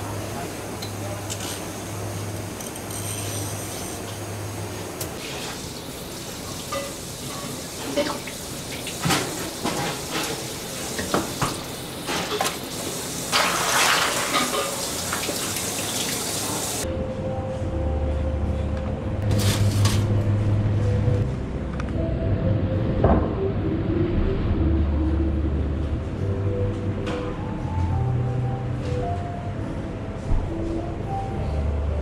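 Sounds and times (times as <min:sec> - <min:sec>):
running water: 0:05.2 - 0:11.8, 0:12.4 - 0:16.8
kitchen work knocks and clatter: 0:08.9 - 0:12.6.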